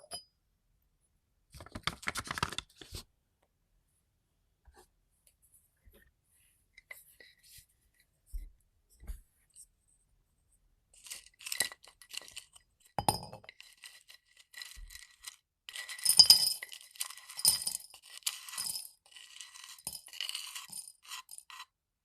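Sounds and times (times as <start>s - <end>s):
dried herbs clinking in container: 11.0s - 21.6s.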